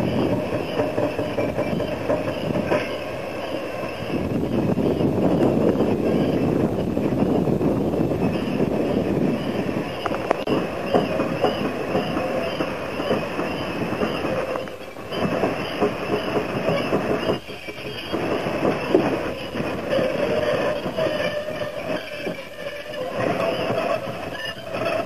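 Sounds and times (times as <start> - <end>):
carriage washer rumbling: 0.0 - 25.0
high wavering squeal: 0.0 - 25.0.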